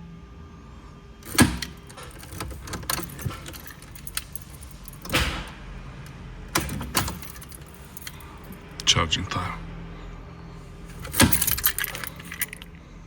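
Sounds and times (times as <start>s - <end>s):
metallic clatter: 1.2s - 5.5s, 6.5s - 8.8s, 10.9s - 12.7s.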